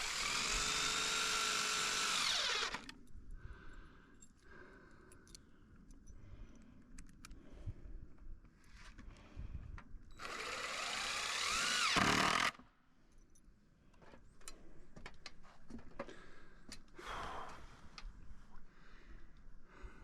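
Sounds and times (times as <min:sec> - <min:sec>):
power drill whining: 0:00.0 - 0:02.9, 0:10.2 - 0:12.6.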